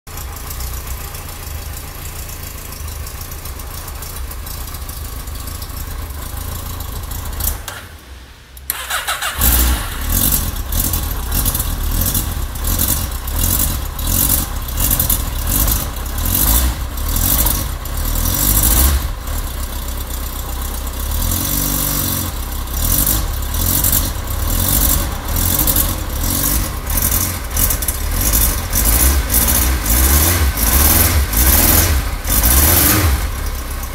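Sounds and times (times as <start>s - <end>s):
motorcycle engine revving: 8.7s - 33.9s.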